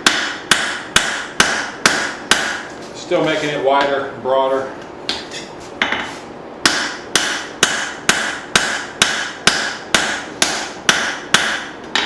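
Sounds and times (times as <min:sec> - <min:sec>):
hammer striking hot steel on anvil: 0:00.0 - 0:02.7, 0:06.6 - 0:12.0.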